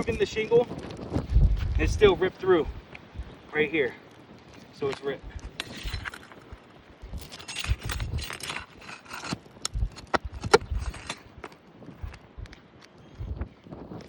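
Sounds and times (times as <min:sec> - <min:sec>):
low thumps: 0:00.8 - 0:03.4, 0:09.6 - 0:13.5
scraping and knocking of roof shingles: 0:04.0 - 0:12.8.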